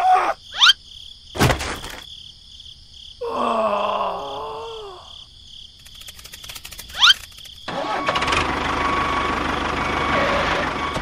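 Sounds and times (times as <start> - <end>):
crickets chirping: 0.0 - 7.8
thud: 1.4 - 2.1.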